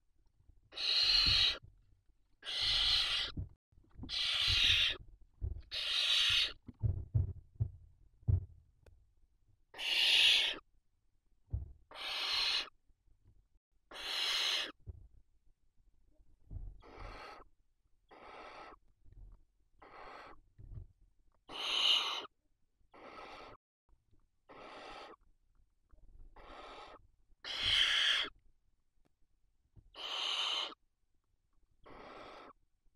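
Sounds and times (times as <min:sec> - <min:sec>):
owl chicks hissing begging calls: 0:00.7 - 0:01.6, 0:02.4 - 0:03.4, 0:04.1 - 0:05.0, 0:05.6 - 0:06.6, 0:09.8 - 0:10.6, 0:11.9 - 0:12.8, 0:13.9 - 0:14.8, 0:16.8 - 0:17.5, 0:18.1 - 0:18.8, 0:19.8 - 0:20.4, 0:21.5 - 0:22.3, 0:22.9 - 0:23.6, 0:24.5 - 0:25.2, 0:26.4 - 0:28.4, 0:30.0 - 0:30.8, 0:31.8 - 0:32.6
faint low bumps: 0:03.3 - 0:05.7, 0:06.5 - 0:08.8, 0:11.5 - 0:11.8.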